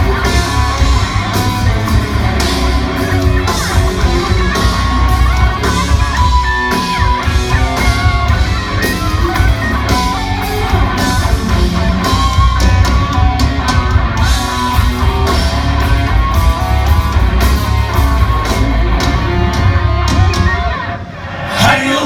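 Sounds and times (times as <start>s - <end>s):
heavy metal band playing live: 0.0s - 22.0s.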